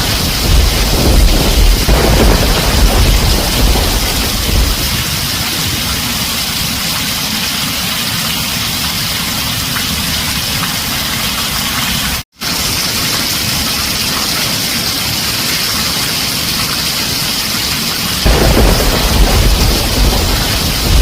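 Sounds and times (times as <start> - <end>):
thunder rumble: 0.0 - 6.7, 18.2 - 21.0
heavy rain on a tin roof: 0.0 - 21.0.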